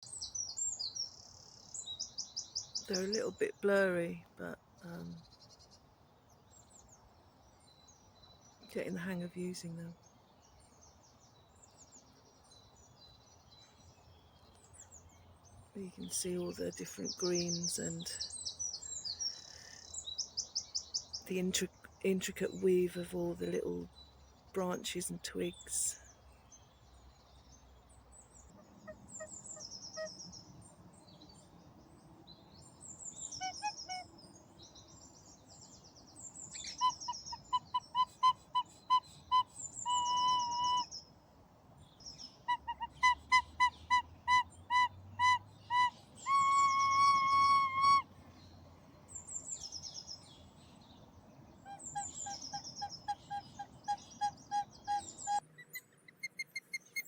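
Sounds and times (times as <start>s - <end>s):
songbird singing: 0.0s - 57.0s
recorder playing: 44.3s - 48.0s.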